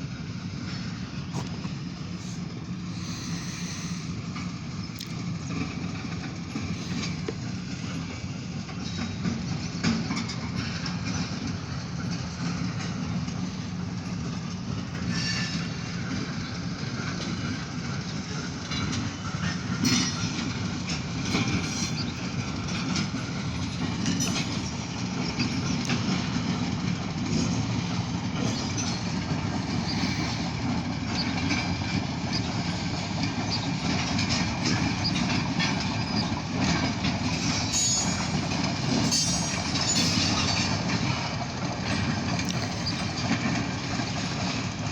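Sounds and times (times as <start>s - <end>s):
rail clicks: 0.0s - 44.9s
train wheels rumbling on rails: 0.0s - 44.9s
metallic squeals: 37.4s - 40.6s.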